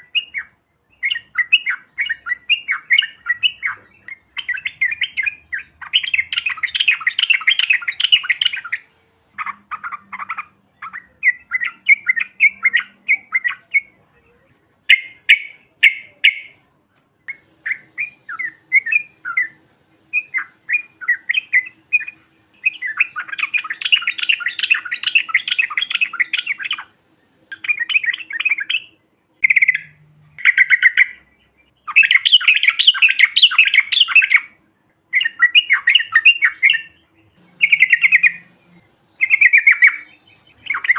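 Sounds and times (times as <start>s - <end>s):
bulbuls chattering: 0.0s - 40.9s.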